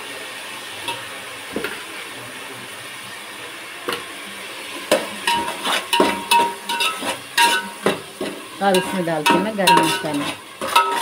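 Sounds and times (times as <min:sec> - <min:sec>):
food sizzling in oil: 0:00.0 - 0:11.0
metal spoon scraping pot: 0:05.3 - 0:11.0.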